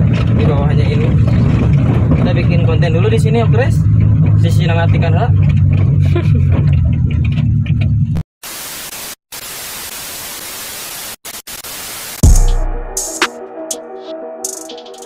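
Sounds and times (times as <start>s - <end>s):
vehicle engine and road noise: 0.0s - 8.2s
tv static hiss: 8.4s - 12.3s
deep bass hit: 12.2s - 13.2s.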